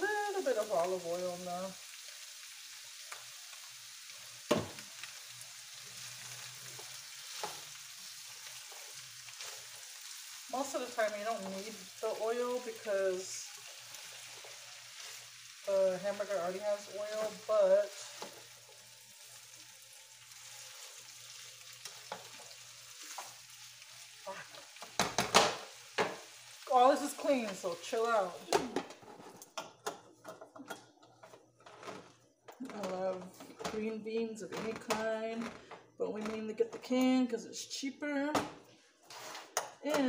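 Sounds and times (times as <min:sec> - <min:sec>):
food sizzling in a frying pan: 0:00.0 - 0:33.8
spatula stirring and scraping: 0:05.1 - 0:24.8, 0:39.0 - 0:39.7.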